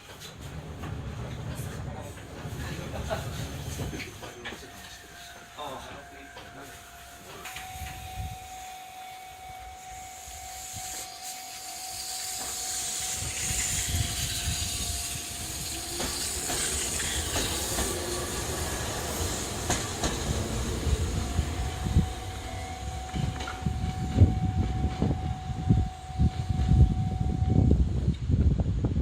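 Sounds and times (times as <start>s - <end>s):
electric train hiss and rumble: 0.0s - 29.0s
wheels clicking over rail joints: 15.2s - 22.1s.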